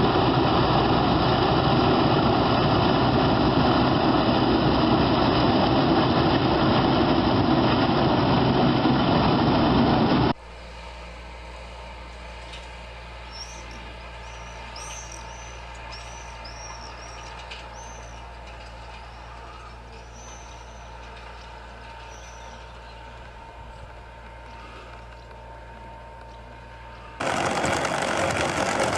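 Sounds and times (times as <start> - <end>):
heavy machine engine running: 0.0 - 28.9
quieter engine hum: 0.0 - 28.9.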